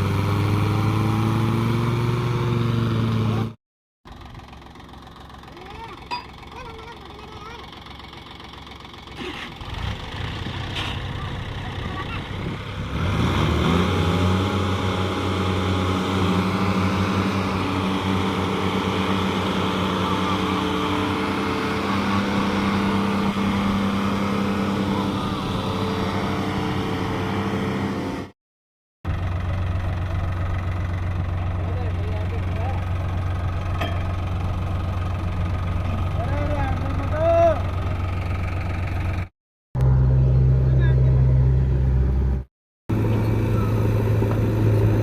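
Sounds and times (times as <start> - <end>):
heavy diesel engine revving: 0.0 - 3.6, 9.0 - 28.4.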